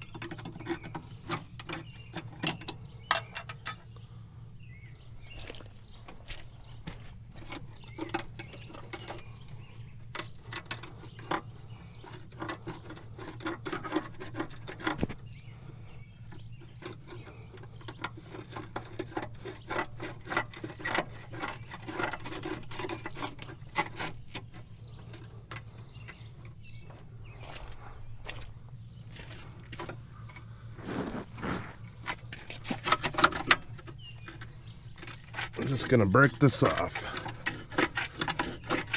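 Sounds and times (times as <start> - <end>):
metal tools clicking and tapping: 0.0 - 4.0
steady low hum: 0.0 - 38.9.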